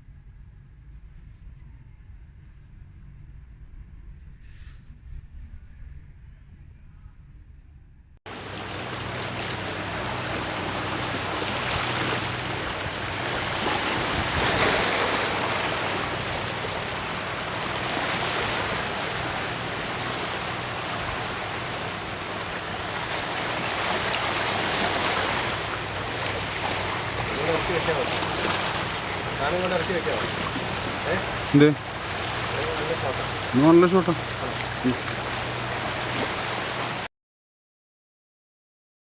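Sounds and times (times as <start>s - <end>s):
water rushing like surf: 8.3s - 37.1s.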